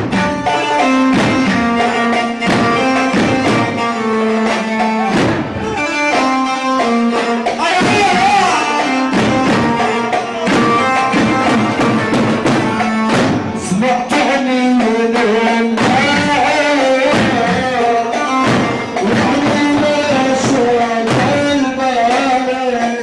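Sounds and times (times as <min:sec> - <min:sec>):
hand drum rhythm: 0:00.0 - 0:23.0
melodic instruments playing: 0:00.2 - 0:14.0.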